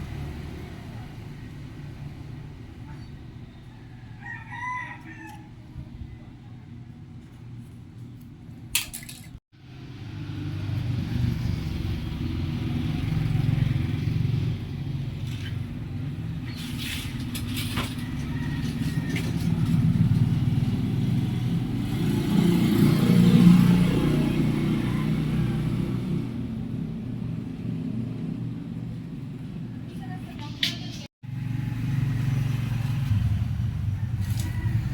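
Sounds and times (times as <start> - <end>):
vehicle engine running: 9.6 - 34.9.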